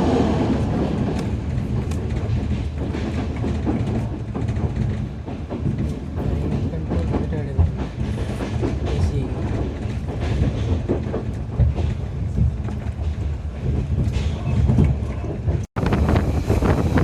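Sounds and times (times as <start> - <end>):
wheels clickety-clack: 0.0 - 16.2
train rumbling along track: 0.0 - 17.0
wind rush: 12.3 - 17.0.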